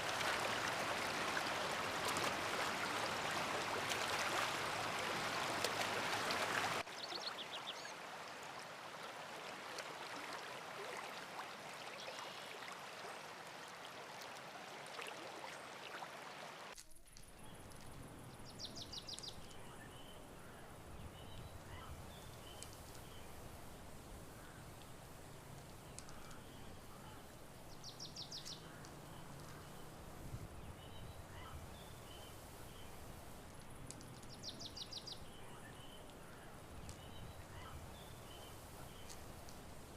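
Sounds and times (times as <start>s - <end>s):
running water rushing: 0.0s - 16.8s.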